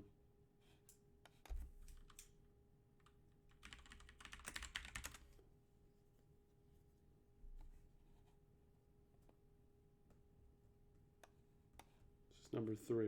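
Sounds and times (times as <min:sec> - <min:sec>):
typing on computer keyboard: 0:01.5 - 0:02.3, 0:03.0 - 0:05.4.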